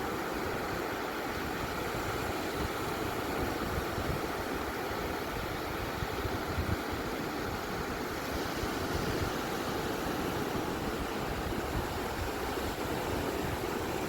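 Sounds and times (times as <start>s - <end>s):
ocean waves washing on beach: 0.0s - 14.0s.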